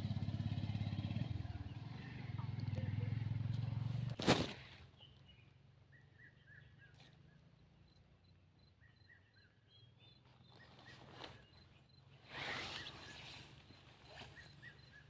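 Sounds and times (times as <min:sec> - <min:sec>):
faint bird chirps: 0:04.8 - 0:15.0.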